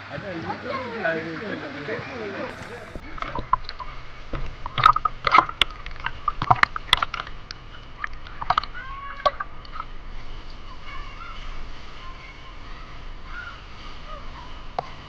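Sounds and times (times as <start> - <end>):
sharp clicks and crunches: 2.5 - 3.0.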